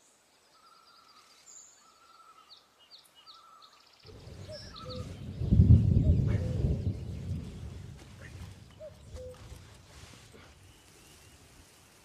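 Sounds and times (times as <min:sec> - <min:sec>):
faint birdsong: 0:00.0 - 0:12.0
low rumbling noise: 0:04.1 - 0:10.2.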